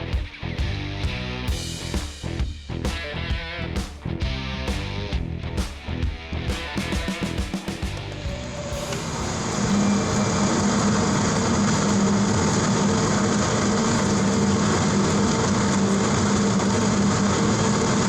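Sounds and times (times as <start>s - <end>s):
machine running with low hum: 7.8s - 18.0s.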